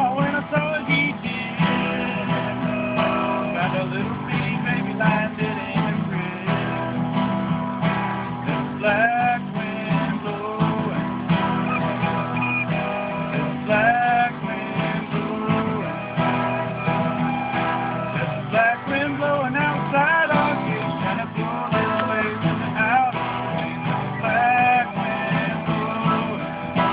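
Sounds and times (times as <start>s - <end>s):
acoustic guitar strumming: 0.0s - 26.9s
recorder melody: 10.9s - 19.1s.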